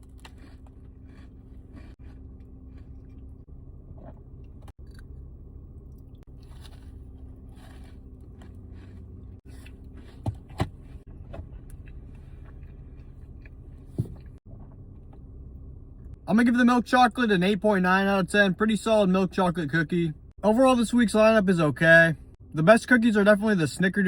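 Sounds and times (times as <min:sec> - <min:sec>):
chewing cookie: 0:00.0 - 0:10.3
steady low hum: 0:00.0 - 0:24.0.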